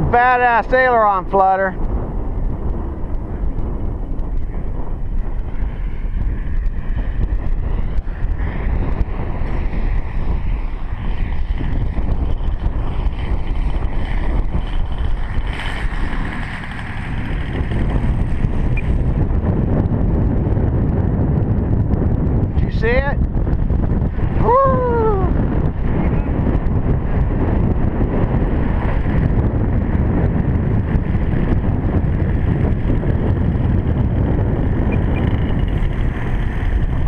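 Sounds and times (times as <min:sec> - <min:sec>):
wind noise on microphone: 0:00.0 - 0:37.0
model plane engine: 0:02.8 - 0:20.4.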